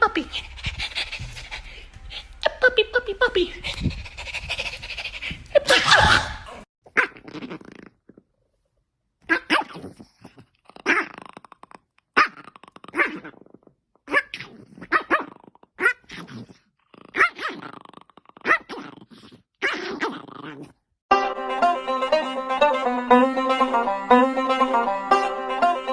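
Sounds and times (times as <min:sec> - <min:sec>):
dog barking and growling: 0:00.0 - 0:08.3, 0:09.2 - 0:20.8
plucked banjo tune: 0:21.1 - 0:25.9.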